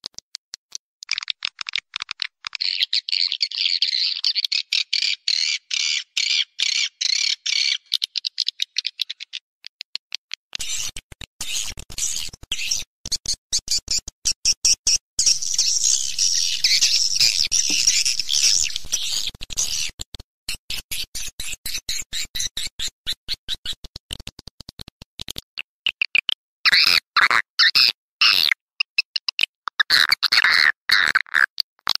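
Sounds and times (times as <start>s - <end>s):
swiftlet chirps and twitters: 2.4s - 9.4s, 15.2s - 19.9s.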